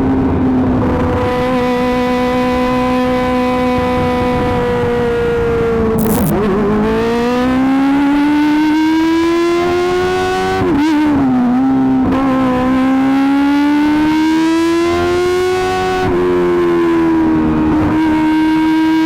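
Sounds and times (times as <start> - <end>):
high buzzing motorcycle engine: 6.0 - 6.3.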